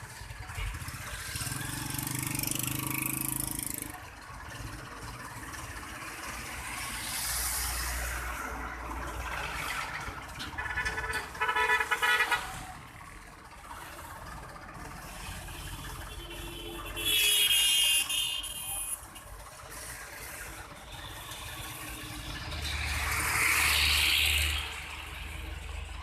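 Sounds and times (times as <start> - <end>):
traffic noise: 0.0 - 26.0
vehicle horn honking: 10.7 - 12.6, 15.6 - 19.1.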